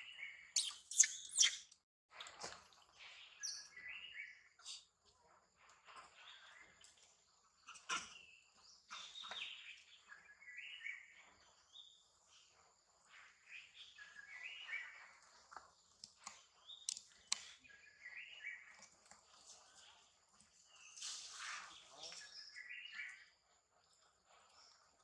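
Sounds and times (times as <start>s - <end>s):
bird singing: 0.0s - 1.7s, 3.0s - 4.8s, 6.1s - 21.0s, 21.6s - 23.4s.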